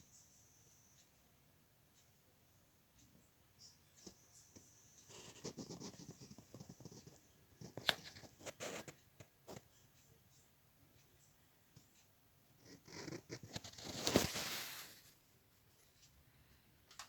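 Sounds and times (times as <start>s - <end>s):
handling scraping and rustling: 12.9s - 16.1s.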